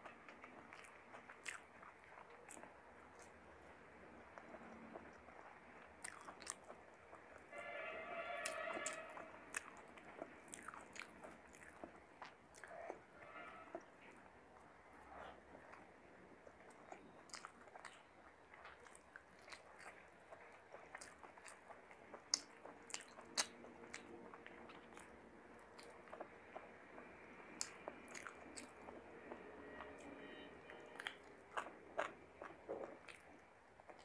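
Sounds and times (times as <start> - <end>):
person chewing with wet smacks: 0.0 - 7.5, 8.4 - 34.0.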